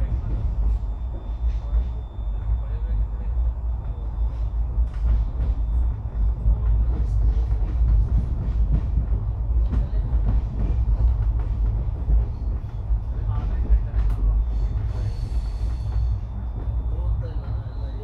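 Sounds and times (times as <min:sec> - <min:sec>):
train low rumble: 0:00.0 - 0:18.0.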